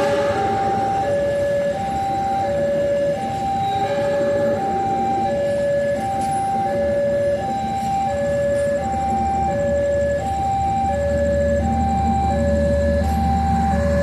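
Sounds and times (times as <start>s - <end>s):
low rumble: 0.0s - 3.0s
two-tone warning alarm: 0.0s - 14.0s.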